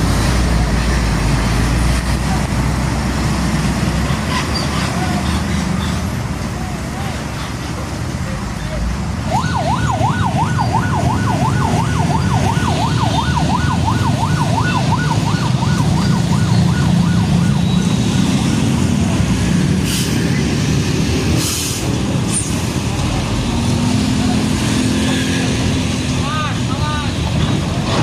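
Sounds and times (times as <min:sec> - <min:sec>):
heavy traffic rumble: 0:00.0 - 0:28.0
emergency siren yelping: 0:09.2 - 0:19.0.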